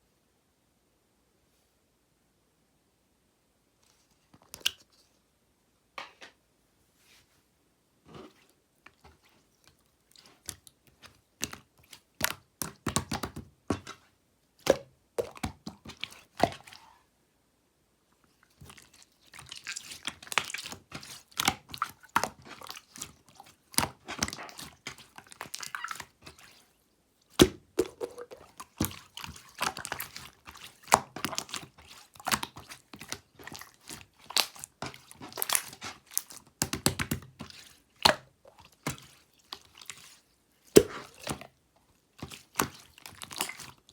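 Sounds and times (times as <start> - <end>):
slime squishing and popping: 27.3 - 39.0.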